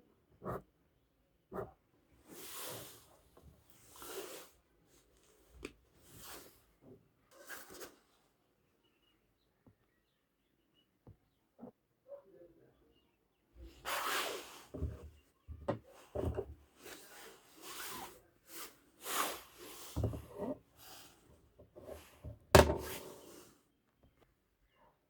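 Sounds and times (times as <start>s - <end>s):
rubbing and scraping on a surface: 7.3s - 8.1s, 13.8s - 23.6s
knocks: 22.6s - 23.0s.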